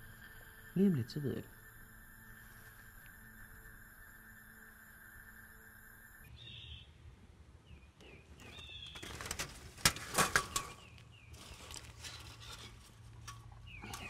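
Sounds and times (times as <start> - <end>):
birds chirping: 0.0 - 7.0, 7.6 - 9.4, 13.6 - 14.0
sharp clicks and rustling: 8.4 - 14.0.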